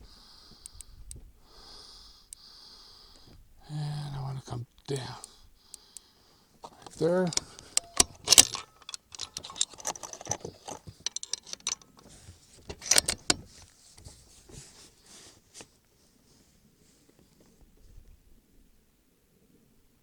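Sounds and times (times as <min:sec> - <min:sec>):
rifle metallic clicks and rattles: 0:06.7 - 0:14.1.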